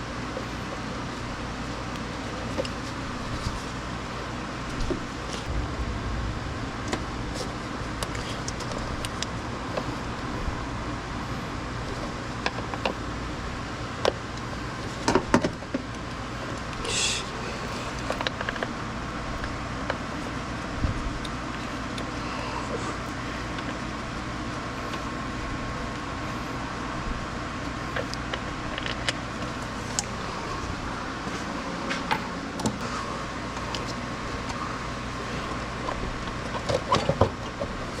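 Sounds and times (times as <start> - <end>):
steady low hum: 5.3 - 12.1.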